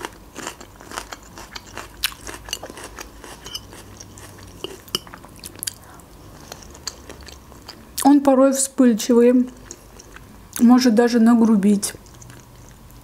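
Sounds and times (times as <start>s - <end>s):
crunchy chewing of pepper: 0.0s - 7.8s, 12.0s - 13.0s.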